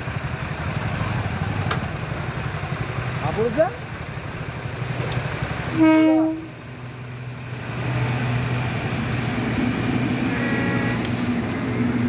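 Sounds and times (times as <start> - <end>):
freight wagons rumbling: 0.0 - 12.0
train horn blast: 5.7 - 6.6, 10.3 - 11.1.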